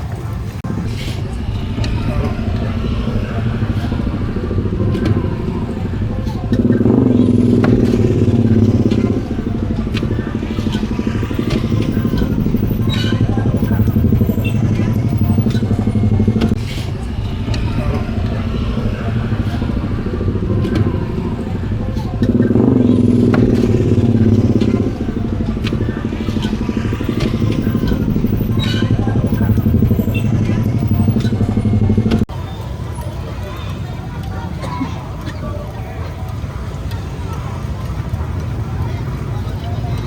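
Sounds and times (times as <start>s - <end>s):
small engine running: 0.7s - 32.3s.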